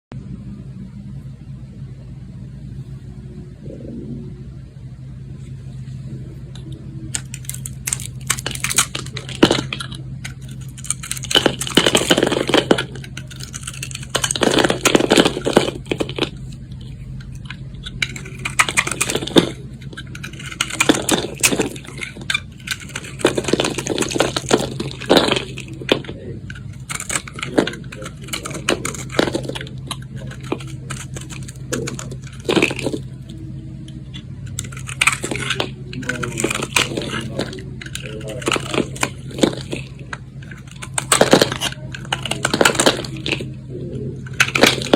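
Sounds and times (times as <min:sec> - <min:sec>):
steady low hum: 0:00.1 - 0:44.9
knife cutting soap: 0:07.2 - 0:33.3, 0:34.0 - 0:43.5.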